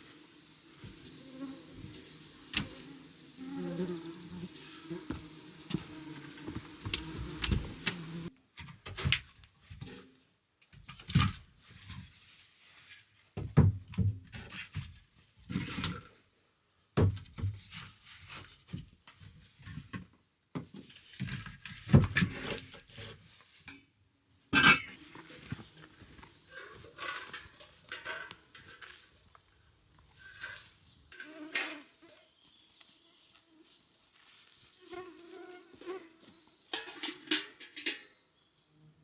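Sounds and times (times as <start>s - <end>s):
dull thumps and knocks: 5.1s - 8.2s.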